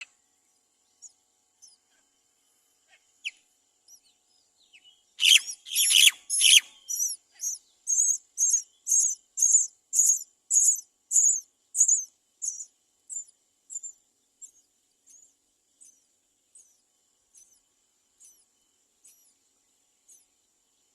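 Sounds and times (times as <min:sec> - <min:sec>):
chicks shrill begging calls: 0:05.2 - 0:12.0.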